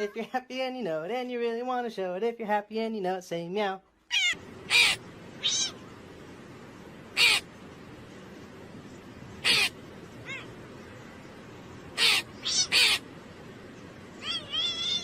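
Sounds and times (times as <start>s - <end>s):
cat meowing: 4.1s - 5.8s, 9.4s - 10.6s, 12.0s - 13.0s, 14.2s - 15.0s.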